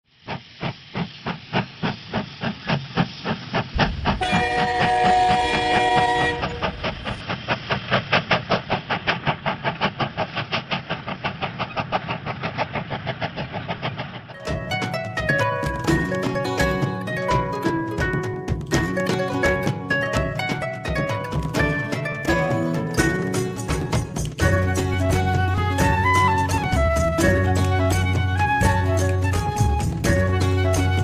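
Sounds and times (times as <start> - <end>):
train wheels clickety-clack: 0.1 - 31.0
train whistle: 3.8 - 7.2.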